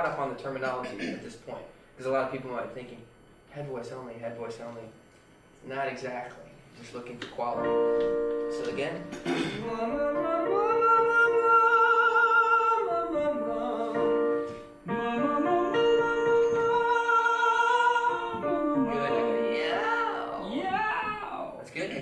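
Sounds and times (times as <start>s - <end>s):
piano accompaniment: 7.4s - 21.3s
man singing vocal warm-up: 9.3s - 21.2s.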